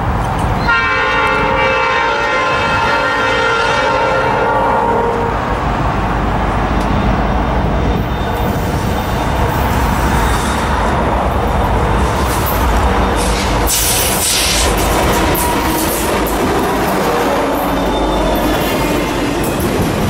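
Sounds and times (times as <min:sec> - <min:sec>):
train rumbling past: 0:00.0 - 0:20.0
train horn blast: 0:00.6 - 0:05.5.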